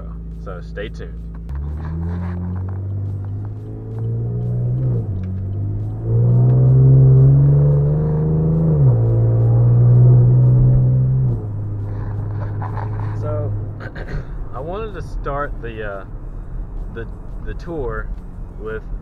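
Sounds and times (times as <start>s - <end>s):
car engine accelerating: 1.2s - 19.0s.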